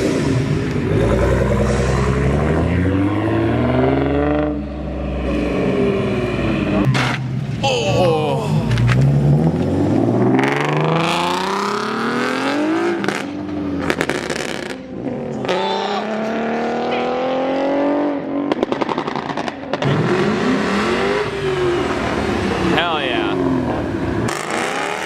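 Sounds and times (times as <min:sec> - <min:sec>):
car engine accelerating hard: 0:00.0 - 0:07.2, 0:08.6 - 0:25.0.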